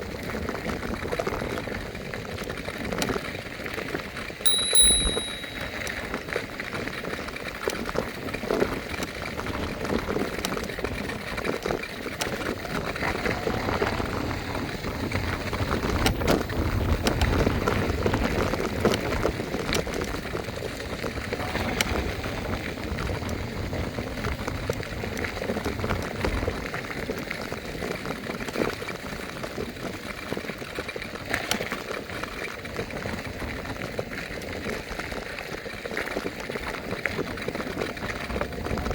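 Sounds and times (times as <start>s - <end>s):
wind rumble on microphone: 12.6s - 38.9s.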